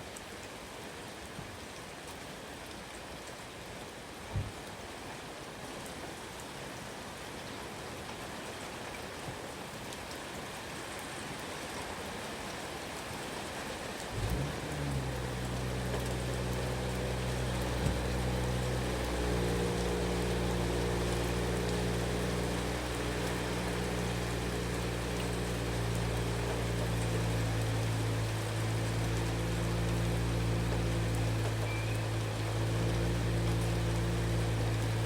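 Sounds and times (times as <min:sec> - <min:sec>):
steady rain falling: 0:00.0 - 0:35.0
engine idling: 0:14.2 - 0:35.0.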